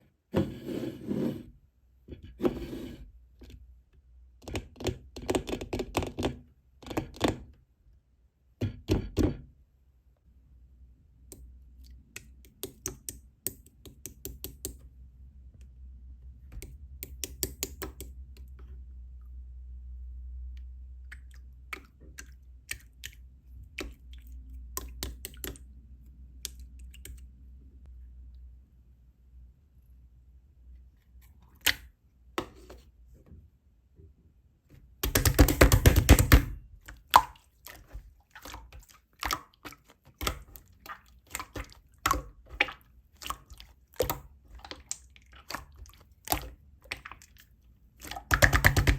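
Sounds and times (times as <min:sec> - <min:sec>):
slime clicking and popping: 0:48.0 - 0:48.9.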